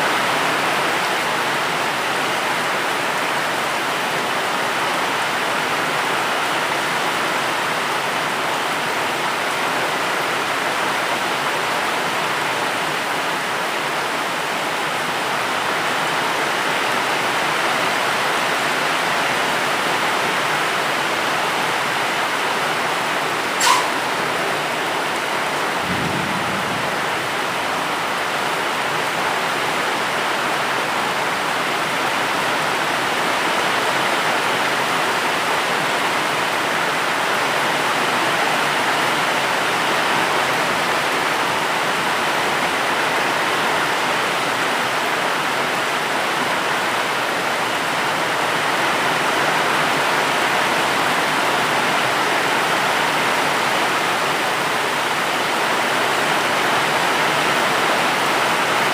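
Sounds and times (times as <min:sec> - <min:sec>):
heavy rain hissing: 0:00.0 - 0:58.9.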